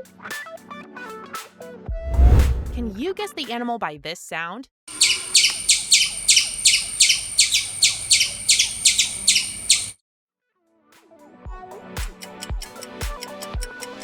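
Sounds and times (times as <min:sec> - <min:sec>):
music: 0:00.0 - 0:03.7, 0:10.6 - 0:14.0
squirrel alarm chirps: 0:04.9 - 0:09.9.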